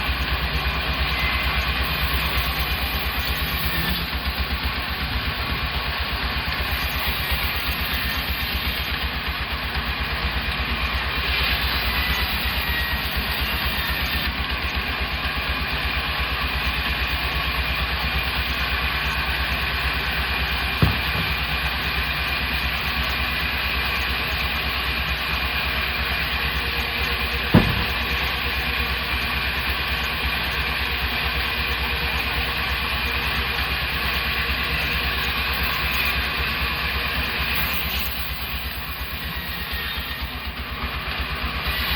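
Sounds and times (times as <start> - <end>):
sawmill machinery running: 0.0 - 41.9
sharp knocks: 20.8 - 21.7, 27.5 - 28.2.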